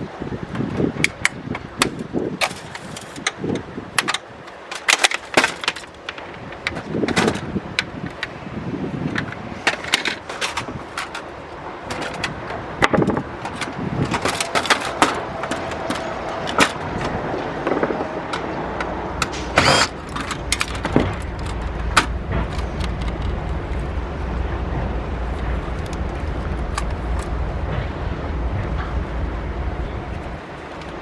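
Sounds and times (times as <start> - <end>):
parts and tools clicking and scraping: 0.5 - 24.1, 25.1 - 28.0, 30.1 - 31.0
low steady rumble: 16.8 - 31.0.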